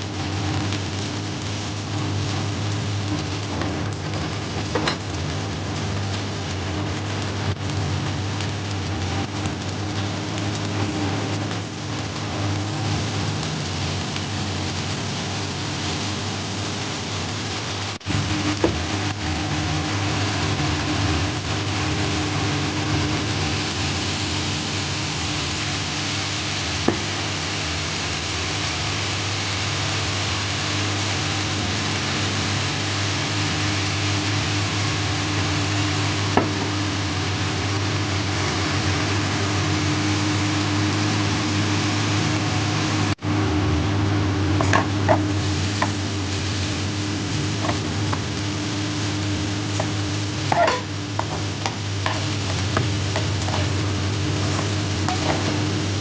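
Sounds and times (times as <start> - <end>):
rice sizzling in a pan: 0.0 - 56.0.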